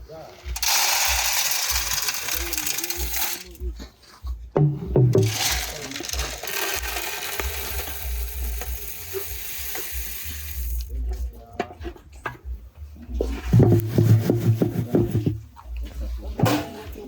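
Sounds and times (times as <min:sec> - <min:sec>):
coffee beans stirred in hot pan: 0:00.1 - 0:03.6, 0:05.2 - 0:10.9.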